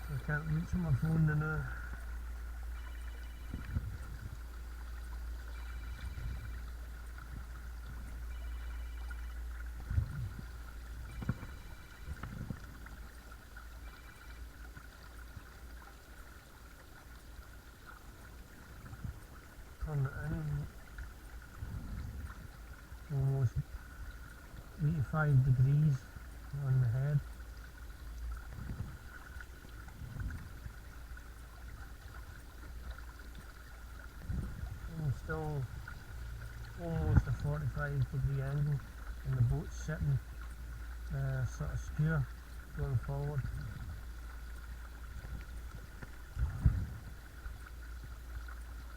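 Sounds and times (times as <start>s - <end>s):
water gurgling along hull: 0.0s - 48.9s
low rumble: 34.1s - 39.6s, 42.9s - 47.8s.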